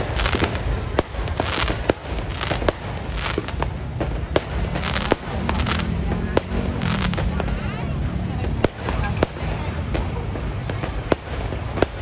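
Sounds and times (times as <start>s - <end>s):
firework shells bursting: 0.0s - 7.6s
fireworks crackling: 0.0s - 12.0s.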